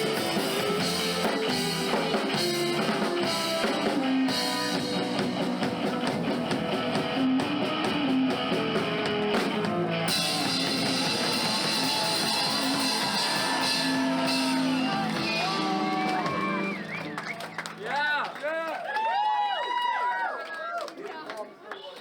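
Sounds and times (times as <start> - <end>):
drum beat: 0.0 - 17.2
live rock band playing: 0.0 - 17.9.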